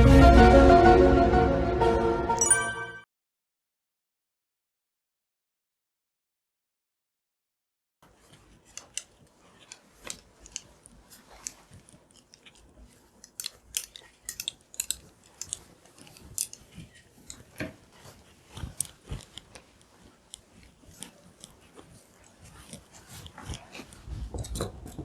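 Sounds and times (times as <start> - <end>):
objects being handled: 8.0 - 25.0.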